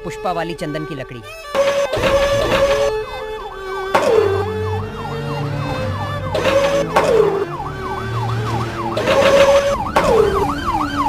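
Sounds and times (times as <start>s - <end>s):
siren wailing: 1.5s - 11.0s
low stepping bass: 2.0s - 9.0s.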